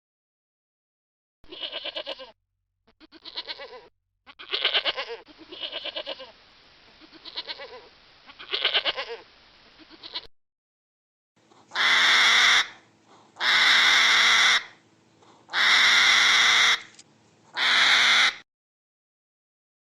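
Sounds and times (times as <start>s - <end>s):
livestock bleating: 1.5s - 6.4s, 7.0s - 10.3s.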